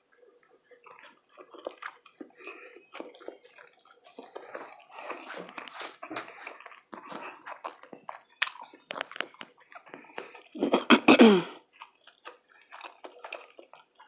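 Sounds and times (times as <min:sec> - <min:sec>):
wet chewing and lip smacks: 0:00.0 - 0:14.0
person coughing: 0:10.6 - 0:11.6.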